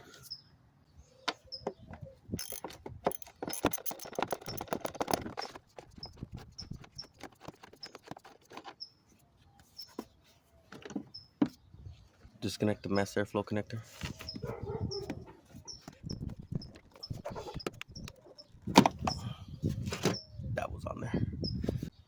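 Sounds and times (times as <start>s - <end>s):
socket ratchet clicking: 2.4s - 5.2s.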